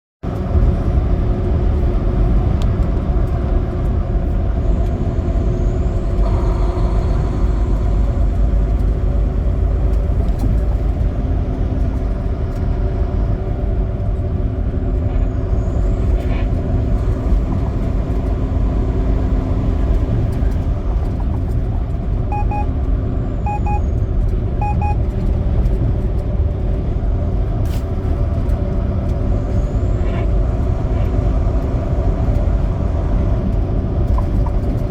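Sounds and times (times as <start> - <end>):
truck engine and road drone: 0.2 - 34.9
short double beeps: 22.3 - 22.7, 23.5 - 23.9, 24.6 - 25.0.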